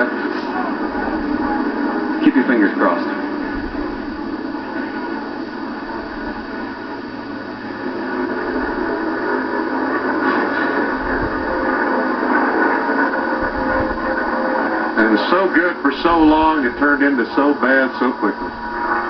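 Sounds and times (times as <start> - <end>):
race truck engines droning: 0.0 - 19.0.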